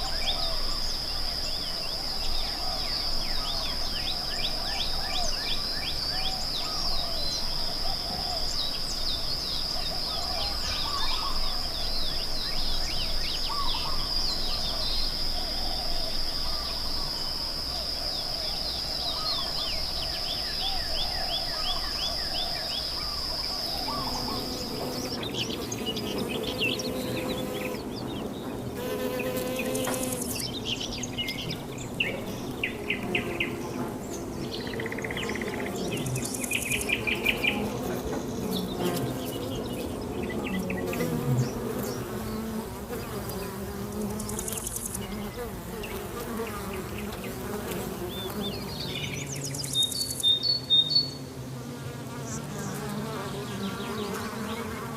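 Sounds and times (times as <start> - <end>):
insect buzz: 0.0 - 54.9
birds chirping: 19.0 - 51.2.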